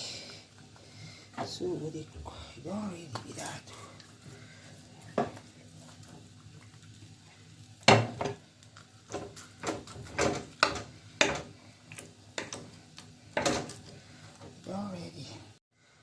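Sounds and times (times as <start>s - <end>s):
dishes and utensils clinking: 7.9s - 8.4s.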